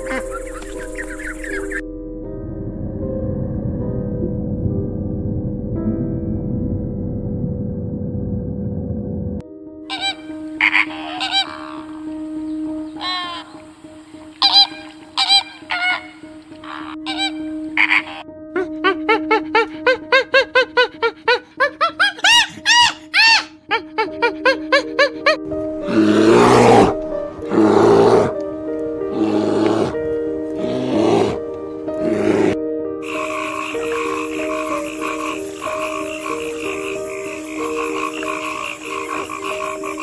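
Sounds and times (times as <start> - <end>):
loud harsh calls: 9.9 - 12.0.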